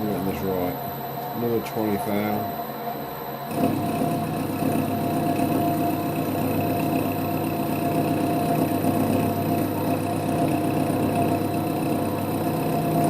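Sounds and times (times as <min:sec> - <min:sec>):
lathe motor humming: 0:00.0 - 0:13.0.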